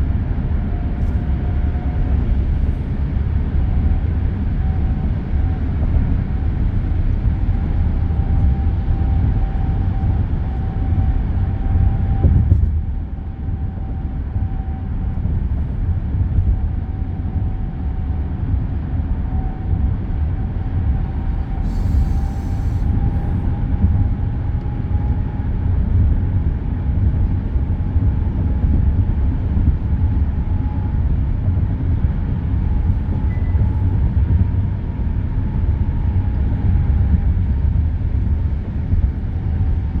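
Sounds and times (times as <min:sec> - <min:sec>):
faint wavering whine: 0:20.9 - 0:26.6, 0:32.4 - 0:37.6.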